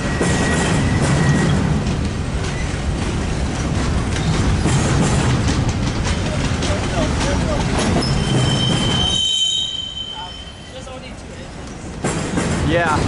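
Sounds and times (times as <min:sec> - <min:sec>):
wheels clicking over rail joints: 0:00.0 - 0:09.2, 0:10.8 - 0:13.0
freight train rumbling past: 0:00.0 - 0:13.0
high-pitched wheel squeal: 0:08.0 - 0:10.9.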